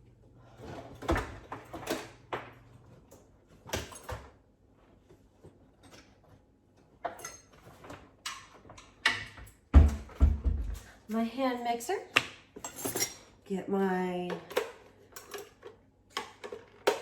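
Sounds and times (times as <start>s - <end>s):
cabinet doors and items clattering: 0.4s - 11.5s, 14.1s - 17.0s.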